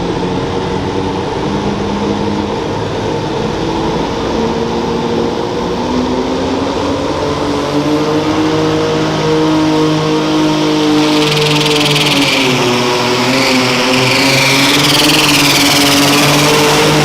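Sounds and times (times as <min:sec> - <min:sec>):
tractor engine revving: 0:09.8 - 0:17.0.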